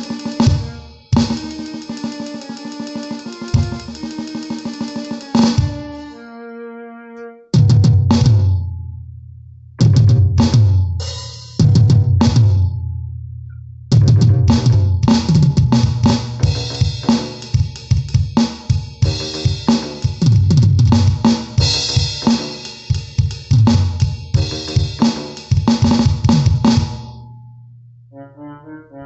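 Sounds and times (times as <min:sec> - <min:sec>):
drum kit playing fast: 0:00.0 - 0:06.2, 0:07.6 - 0:08.6, 0:09.8 - 0:12.6, 0:13.9 - 0:27.2.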